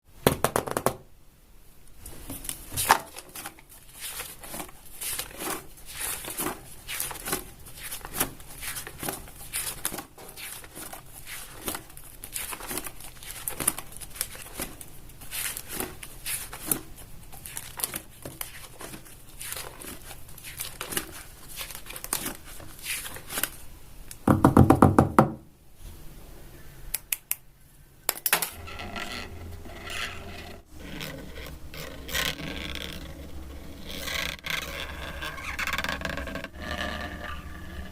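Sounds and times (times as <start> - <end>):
paper crinkling: 2.1 - 23.7.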